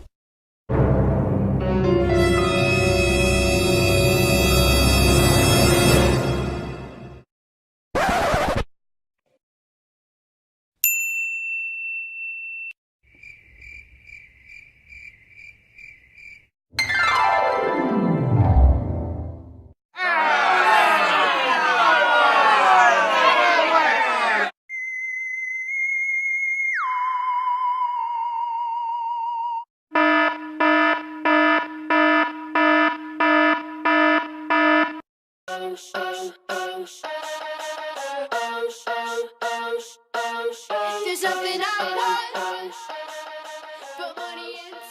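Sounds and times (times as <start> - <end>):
cricket chirping sound effect: 13.1 - 16.5
electronic alarm buzzer pulses: 29.9 - 35.0.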